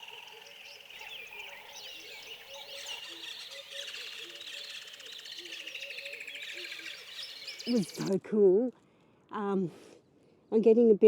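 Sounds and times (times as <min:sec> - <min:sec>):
birds chirping and trilling: 0:00.0 - 0:08.1.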